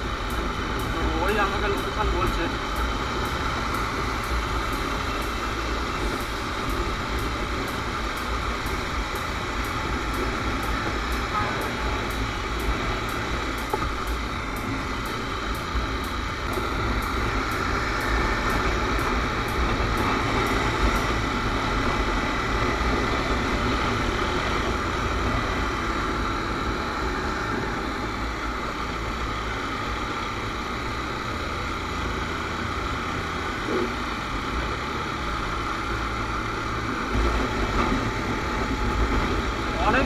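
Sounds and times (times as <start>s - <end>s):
motorcycle engine running: 0.0s - 40.0s
passing traffic: 0.0s - 40.0s.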